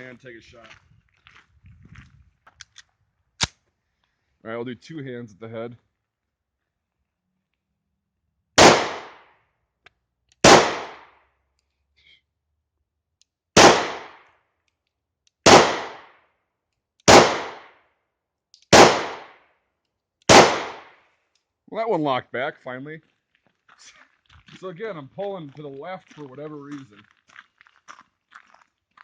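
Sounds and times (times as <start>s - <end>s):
pistol shots with echo: 8.6s - 9.3s, 10.4s - 11.1s, 13.6s - 14.2s, 15.4s - 16.2s, 17.1s - 17.8s, 18.7s - 19.4s, 20.3s - 21.0s.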